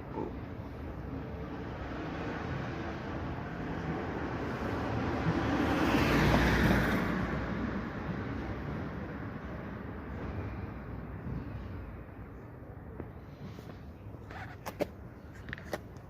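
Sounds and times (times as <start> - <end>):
vehicle passing by: 1.7 - 8.8.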